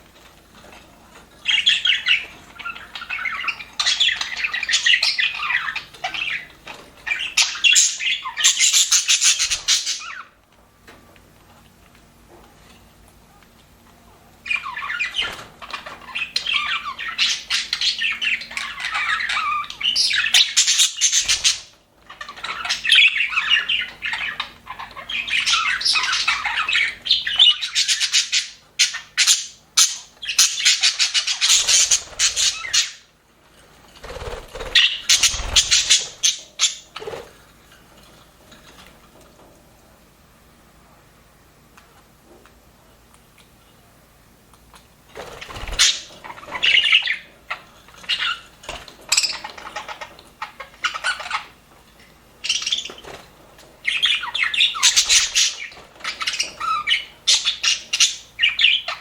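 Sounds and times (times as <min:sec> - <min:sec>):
budgerigars chattering: 0:14.5 - 0:33.1, 0:34.1 - 0:37.2, 0:53.8 - 0:59.0.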